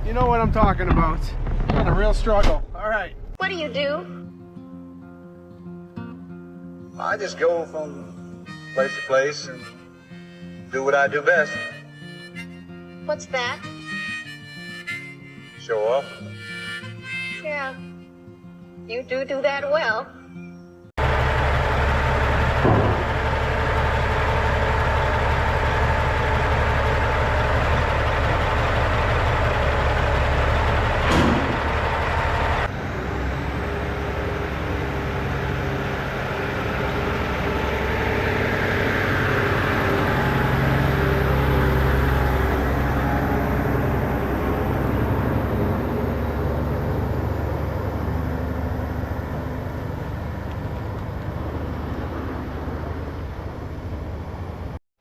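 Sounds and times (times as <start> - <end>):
diesel truck engine rumbling: 0.0 - 3.9, 21.0 - 54.8.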